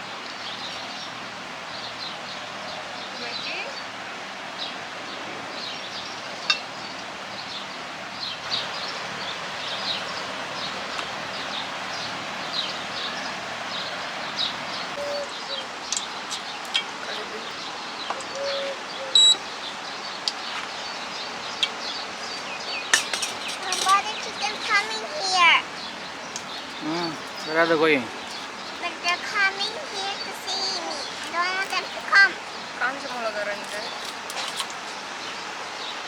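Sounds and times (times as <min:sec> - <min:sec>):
small birds chirping: 0:00.0 - 0:36.0
steady background hiss: 0:00.0 - 0:36.0
whistle-like bird call: 0:15.0 - 0:15.6, 0:18.3 - 0:19.4.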